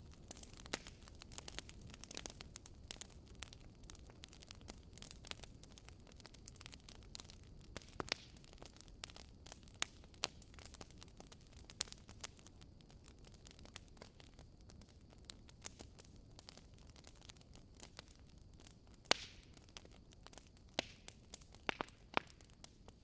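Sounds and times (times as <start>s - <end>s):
low rumble of flames: 0.0s - 23.0s
wood fire crackling: 0.0s - 23.0s
sharp pops and snaps: 19.0s - 19.5s, 20.7s - 22.7s.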